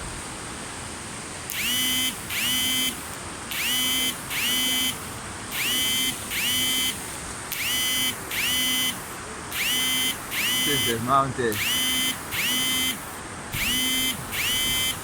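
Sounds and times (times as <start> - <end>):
electronic chirping beeps: 9.6 - 13.0, 13.6 - 15.0.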